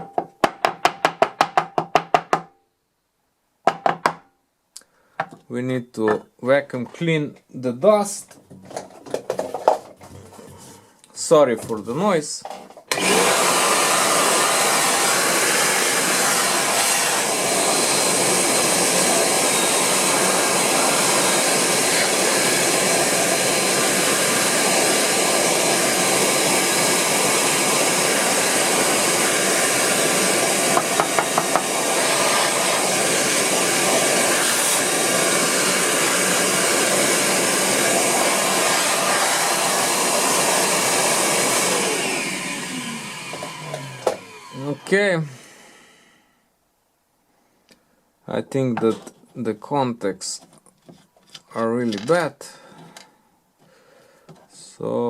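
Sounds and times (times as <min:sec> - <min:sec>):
vacuum cleaner running: 0:12.9 - 0:46.1.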